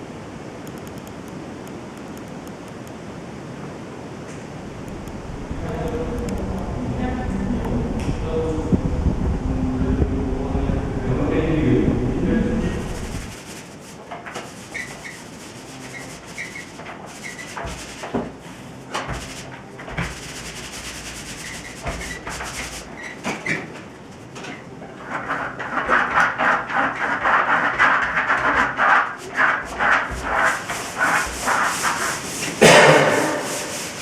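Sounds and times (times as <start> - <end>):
small squeaks: 22.8 - 23.7
tool scraping plaster: 25.0 - 34.0.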